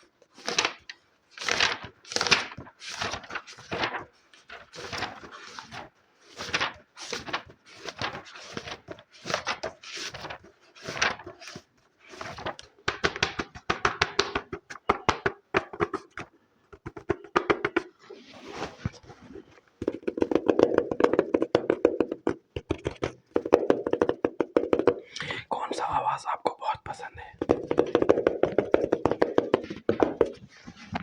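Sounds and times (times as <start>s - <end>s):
rapid tapping: 27.4s - 30.4s.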